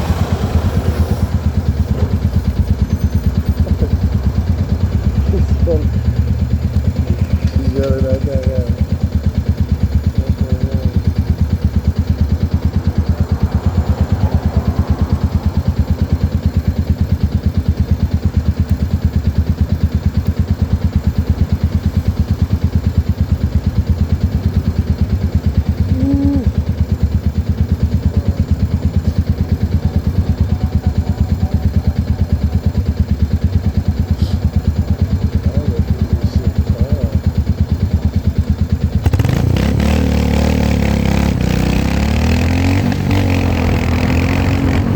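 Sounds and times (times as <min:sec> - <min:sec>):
motorcycle engine idling: 0:00.0 - 0:44.9
motorcycle engine revving: 0:00.0 - 0:44.9.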